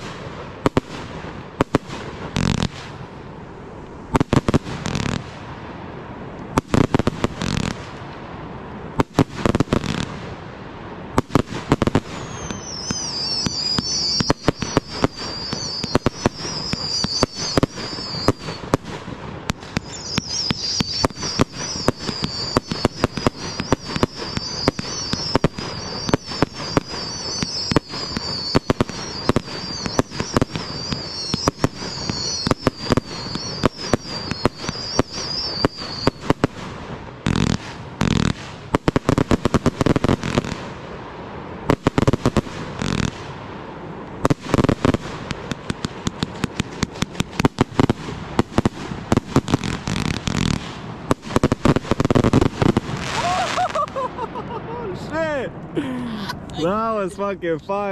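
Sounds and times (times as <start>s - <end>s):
heavy firework booms: 0.0s - 55.7s
fireworks popping and crackling: 0.0s - 57.9s
wavering high whistle: 12.2s - 18.6s, 19.8s - 36.2s.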